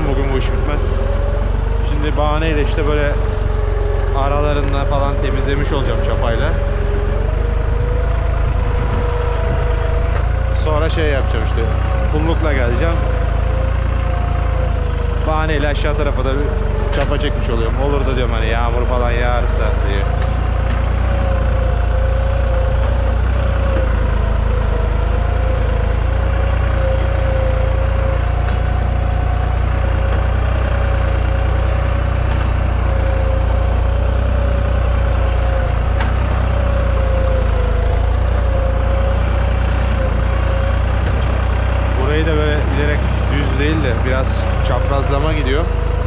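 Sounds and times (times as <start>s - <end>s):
tractor diesel engine running: 0.0s - 46.0s.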